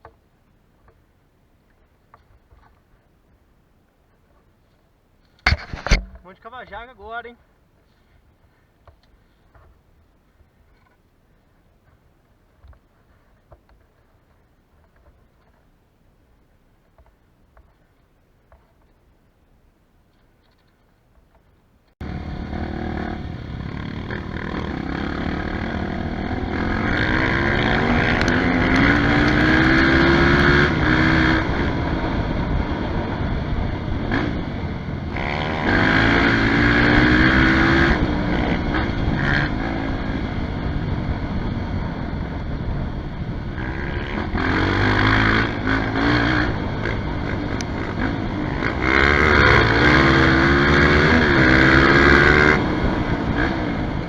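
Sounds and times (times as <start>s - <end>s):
dirt bike engine revving: 22.0s - 54.0s.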